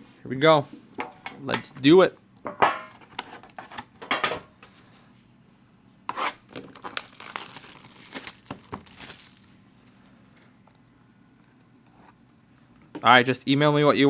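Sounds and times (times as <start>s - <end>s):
card pack wrapper tearing and crinkling: 6.5s - 9.6s.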